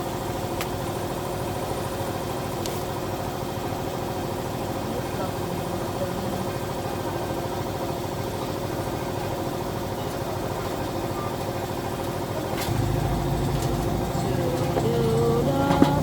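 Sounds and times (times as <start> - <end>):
motorcycle engine idling: 12.7 - 16.0.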